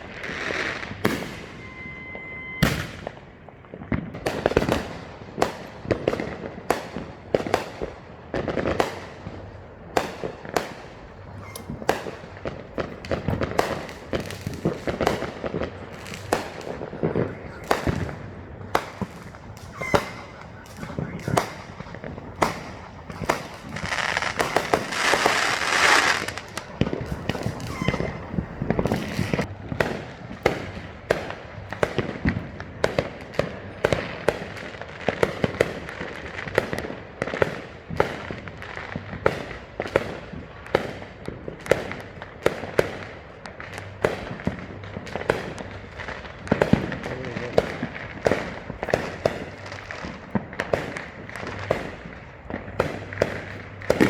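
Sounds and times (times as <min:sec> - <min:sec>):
fireworks bangs and pops: 0:00.0 - 0:54.0
hissing crackle: 0:10.6 - 0:29.5.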